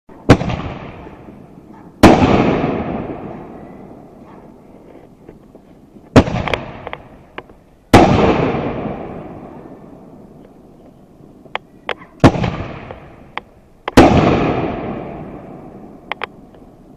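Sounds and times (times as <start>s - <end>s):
small sharp fireworks pops: 0.2s - 1.3s, 1.9s - 9.6s, 10.4s - 16.7s
fireworks bangs with rumble: 0.3s - 1.4s, 2.0s - 3.6s, 6.1s - 7.2s, 7.9s - 9.5s, 12.2s - 13.3s, 13.9s - 15.7s.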